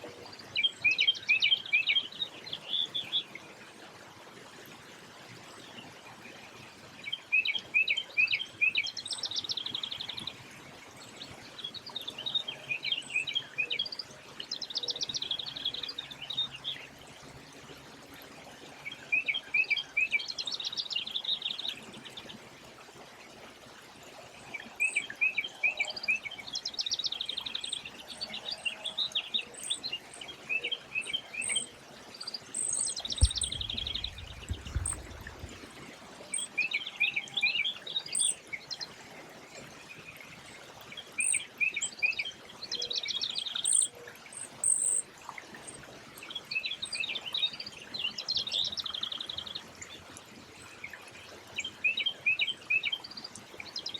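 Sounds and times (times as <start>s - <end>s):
thin high bird chirps: 26.8s - 35.6s, 36.2s - 38.4s, 41.2s - 42.2s, 42.8s - 45.0s
songbird trilling: 26.9s - 31.7s, 32.5s - 35.5s, 36.3s - 38.4s, 41.2s - 42.2s, 42.8s - 45.0s
low rumble: 33.2s - 35.6s.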